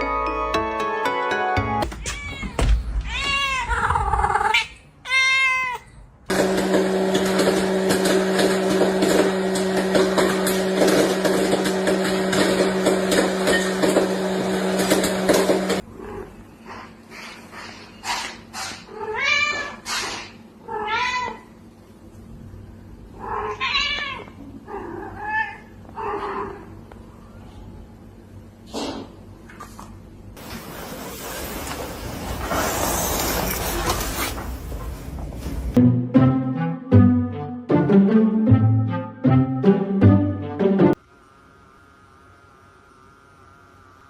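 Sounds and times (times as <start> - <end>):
cat meowing: 2.0 - 6.0, 18.9 - 19.8, 20.6 - 21.5, 23.2 - 26.7
mechanical hum with hiss: 6.3 - 35.8, 41.0 - 44.0.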